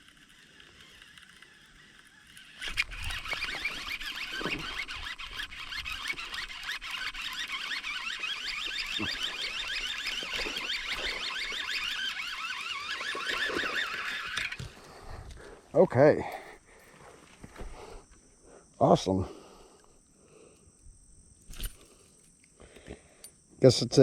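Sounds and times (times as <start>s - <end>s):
fishing reel whirring: 0.0s - 15.0s.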